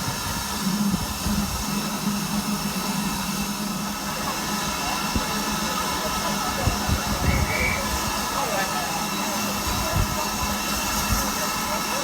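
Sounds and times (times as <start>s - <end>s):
train humming: 0.0s - 12.0s.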